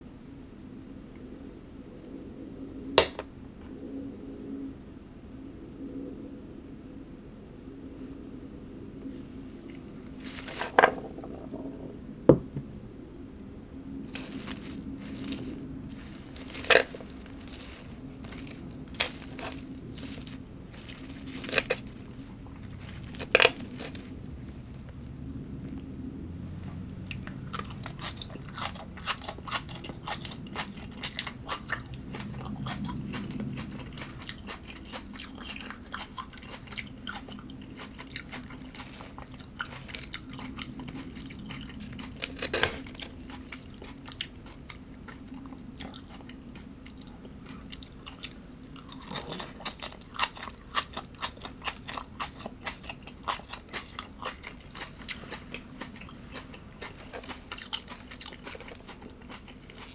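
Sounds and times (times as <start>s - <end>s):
chewing crunchy food: 9.6s - 11.6s, 14.0s - 59.9s.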